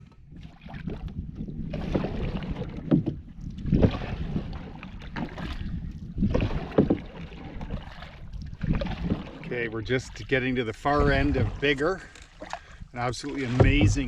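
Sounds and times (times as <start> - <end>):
paddle splashing in water: 0.0 - 14.0
wind rumbling on microphone: 0.0 - 14.0.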